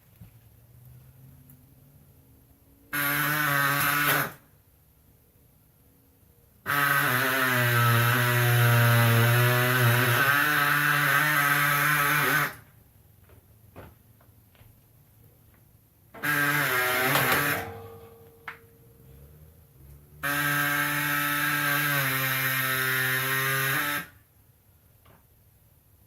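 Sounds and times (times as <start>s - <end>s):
pneumatic air saw cutting metal: 2.9s - 4.4s, 6.7s - 12.7s, 16.2s - 18.2s, 20.2s - 24.2s.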